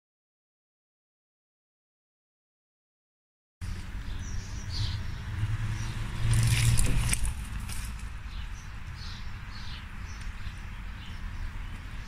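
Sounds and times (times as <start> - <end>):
small birds chirping: 3.6 - 12.0.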